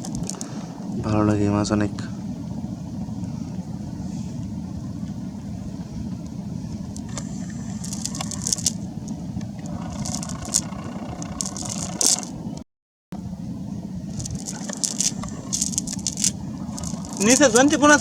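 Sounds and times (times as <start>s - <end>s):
steady low rumble: 0.0s - 12.6s, 13.2s - 18.0s
clicking and rattling: 7.0s - 8.8s, 9.6s - 12.4s, 14.2s - 18.0s.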